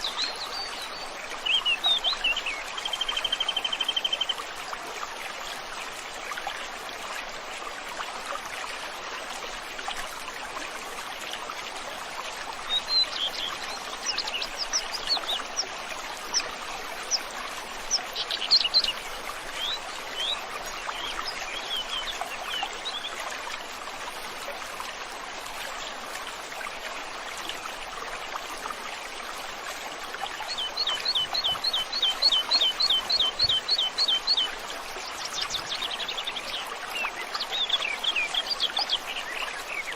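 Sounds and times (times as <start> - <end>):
stream water running: 0.0 - 39.9
songbirds chirping: 12.5 - 23.2, 30.2 - 39.9.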